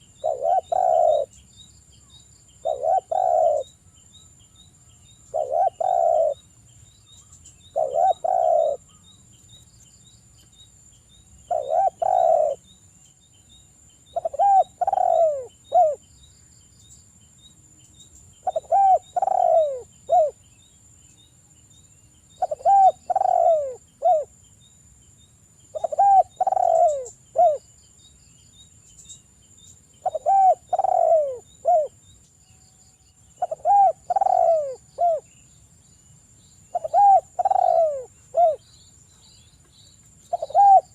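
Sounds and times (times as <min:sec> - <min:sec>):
dove cooing: 0:00.0 - 0:01.4, 0:02.6 - 0:03.8, 0:05.3 - 0:06.4, 0:07.7 - 0:09.0, 0:11.5 - 0:12.6, 0:14.1 - 0:16.0, 0:18.4 - 0:20.4, 0:22.4 - 0:24.3, 0:25.7 - 0:27.6, 0:30.0 - 0:32.0, 0:33.3 - 0:35.3, 0:36.7 - 0:38.7, 0:40.3 - 0:40.9.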